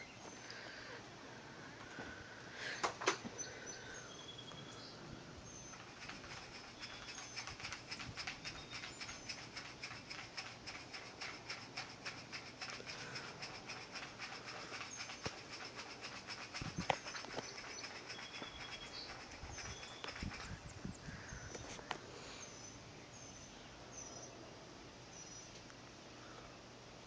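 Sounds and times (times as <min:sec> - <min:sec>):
rapid even ticking: 0:05.6 - 0:20.8.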